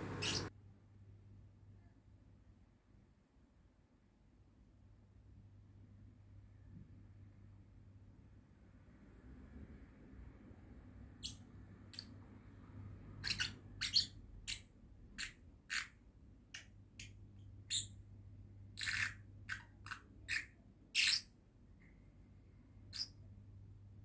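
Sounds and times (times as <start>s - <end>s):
bird chirping: 0.0s - 0.5s, 11.2s - 12.2s, 13.2s - 18.0s, 18.8s - 21.3s, 22.9s - 23.2s.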